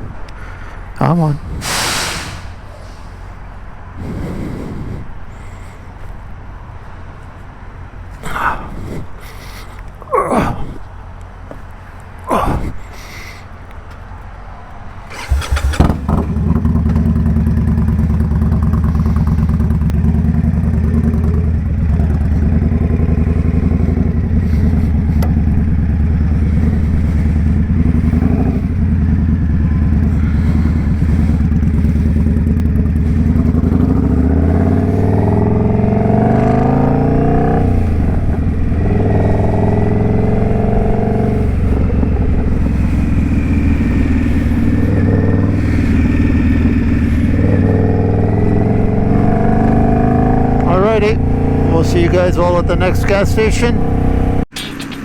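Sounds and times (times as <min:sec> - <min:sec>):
motorcycle accelerating: 0:01.0 - 0:08.0, 0:14.3 - 0:55.0
motorcycle engine starting and idling: 0:14.9 - 0:55.0.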